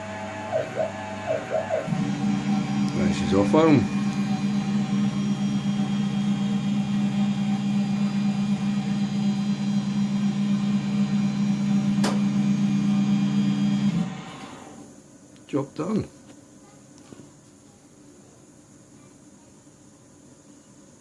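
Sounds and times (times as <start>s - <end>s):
mill machine humming: 0.0s - 14.9s.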